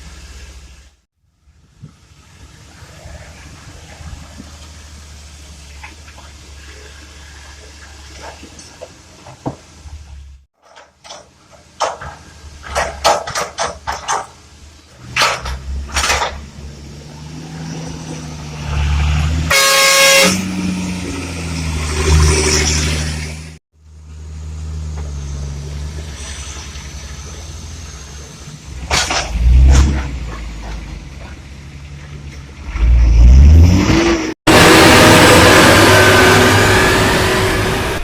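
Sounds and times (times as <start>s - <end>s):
loading knocks and clatter: 8.0s - 16.5s, 28.8s - 32.6s
horn: 19.5s - 20.5s.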